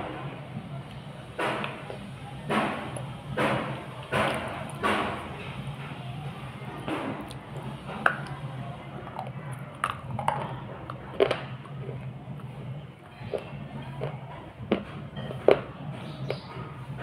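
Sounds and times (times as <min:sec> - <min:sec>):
wet chewing: 0:00.9 - 0:05.7, 0:06.6 - 0:16.5.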